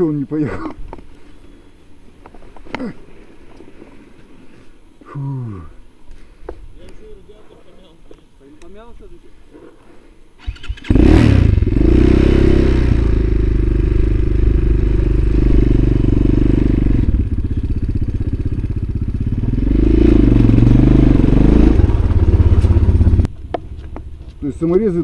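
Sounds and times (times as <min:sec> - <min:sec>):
motorcycle engine starting and revving: 0:10.4 - 0:24.2.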